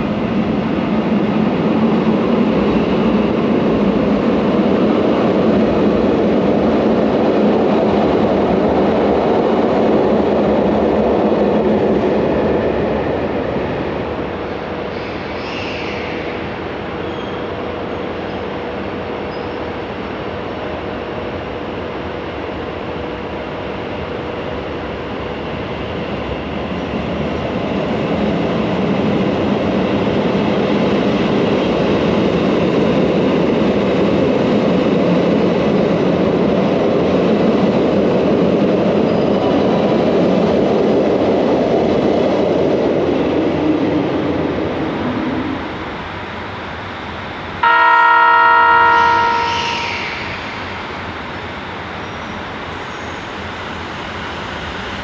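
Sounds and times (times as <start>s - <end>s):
electric train running: 47.6s - 53.2s.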